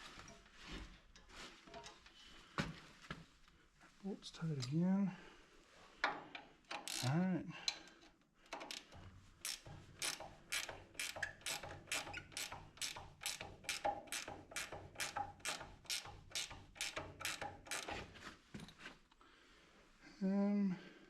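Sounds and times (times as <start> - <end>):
ratchet clicking: 6.7 - 7.2, 8.5 - 18.0.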